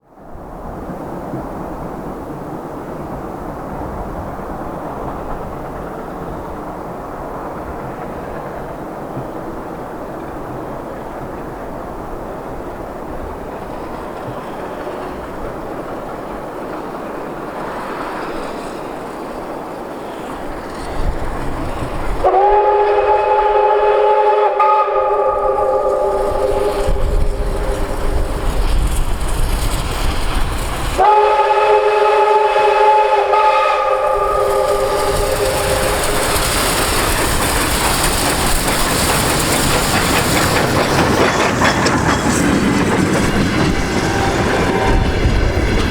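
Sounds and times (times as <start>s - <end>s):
train passing: 0.0s - 45.9s
steam whistle blasts: 22.2s - 28.7s, 31.0s - 36.4s, 44.0s - 45.4s
wheels clattering over rail joints: 34.1s - 45.9s.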